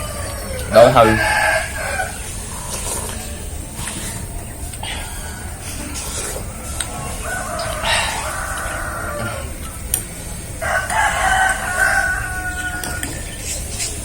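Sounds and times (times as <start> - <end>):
rooster crowing: 0.0 - 2.3, 5.0 - 9.8, 10.6 - 13.3.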